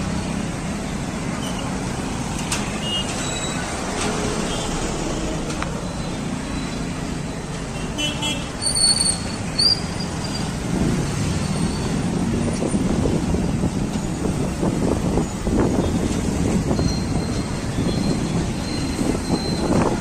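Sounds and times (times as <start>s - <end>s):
heavy traffic rumble: 0.0s - 20.0s
high squeals: 8.6s - 10.6s, 16.6s - 20.0s.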